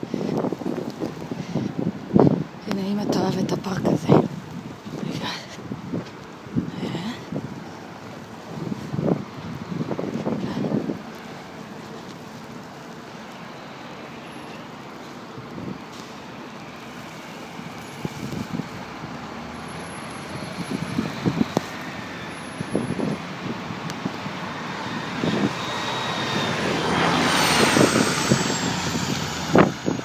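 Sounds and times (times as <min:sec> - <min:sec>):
wind buffeting microphone: 0:00.0 - 0:12.0, 0:17.5 - 0:30.0
city street traffic hiss: 0:00.0 - 0:30.0
vehicle passing: 0:13.5 - 0:30.0.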